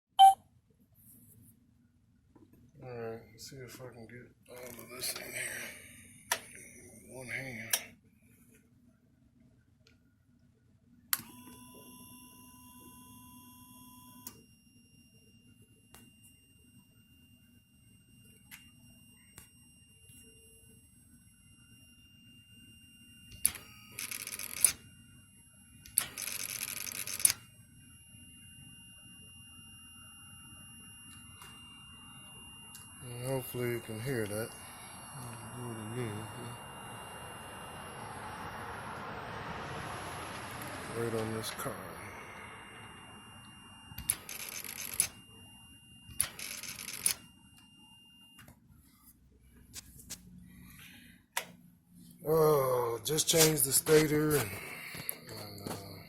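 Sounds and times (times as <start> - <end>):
starter motor rattling buzz: 37.2 - 42.8.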